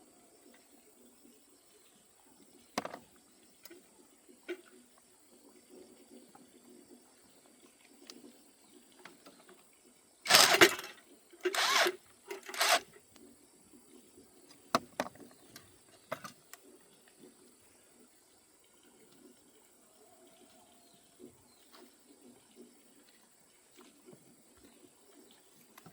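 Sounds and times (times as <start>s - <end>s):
harsh tool bursts: 10.3s - 12.9s
sharp metal clicks: 10.3s - 12.9s.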